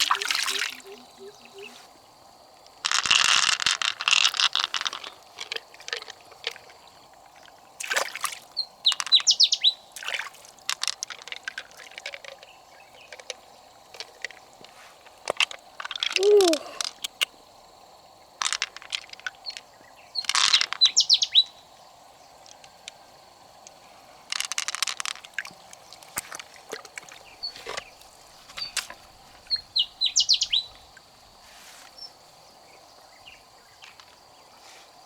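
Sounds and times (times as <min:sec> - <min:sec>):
bird chirps: 0:00.0 - 0:01.9, 0:08.6 - 0:09.8, 0:19.8 - 0:21.6, 0:29.5 - 0:30.8
river water splashing: 0:00.0 - 0:02.0, 0:04.3 - 0:08.6, 0:09.9 - 0:10.9, 0:25.3 - 0:29.5.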